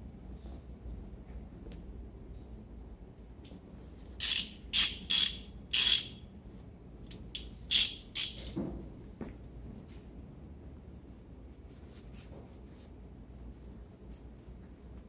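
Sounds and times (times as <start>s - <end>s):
metal parts scraping and rattling: 4.2s - 6.2s, 7.1s - 8.6s.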